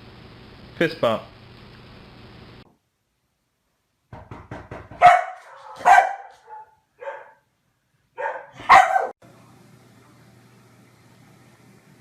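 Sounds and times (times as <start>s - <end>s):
dog barking: 5.0s - 7.4s, 8.2s - 9.2s.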